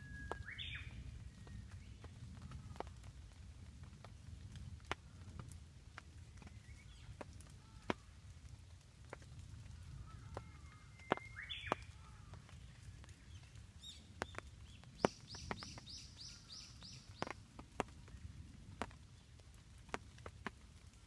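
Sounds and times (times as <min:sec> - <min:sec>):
songbird calling: 0:00.0 - 0:01.8, 0:10.1 - 0:17.4.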